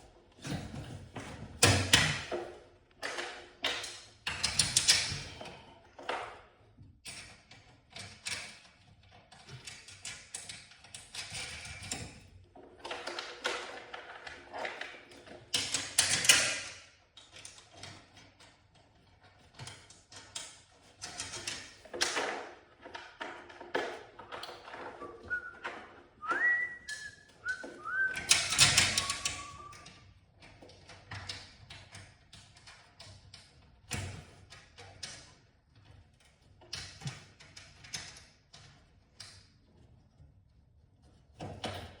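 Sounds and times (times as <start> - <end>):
person whistling: 25.0 - 29.9.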